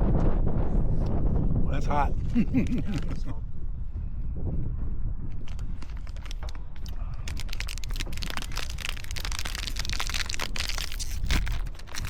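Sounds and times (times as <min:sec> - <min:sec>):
wind buffeting microphone: 0:00.0 - 0:12.0
rapid crinkling crackles: 0:02.2 - 0:03.4, 0:05.3 - 0:12.0.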